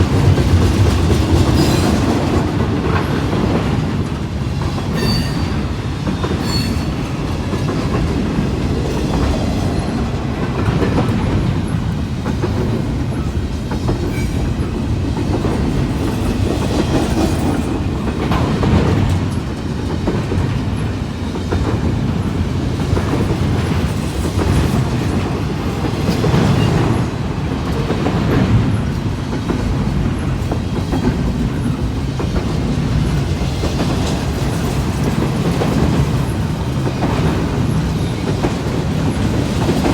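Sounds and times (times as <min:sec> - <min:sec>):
freight train rumbling: 0:00.0 - 0:39.9.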